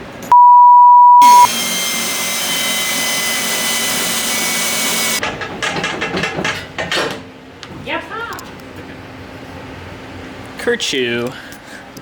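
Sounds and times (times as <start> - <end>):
censor bleep: 0.3 - 1.5
impact wrench whining: 1.2 - 5.2.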